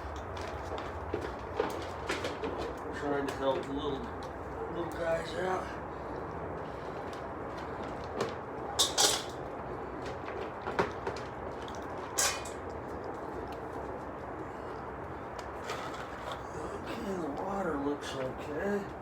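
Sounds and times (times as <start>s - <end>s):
low background noise: 0.0s - 19.0s
objects knocking and clattering: 7.9s - 12.7s.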